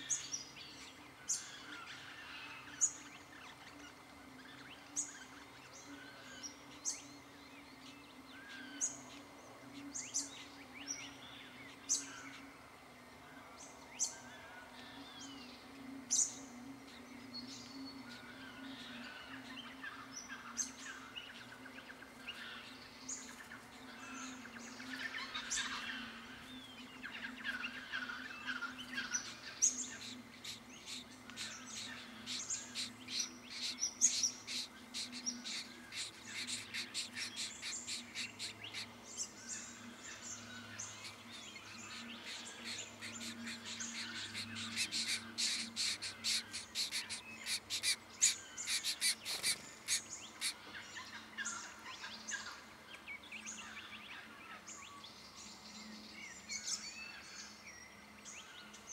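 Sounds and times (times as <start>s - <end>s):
small birds chirping: 0.0s - 12.7s, 13.6s - 58.9s
faint low hum: 0.0s - 58.9s.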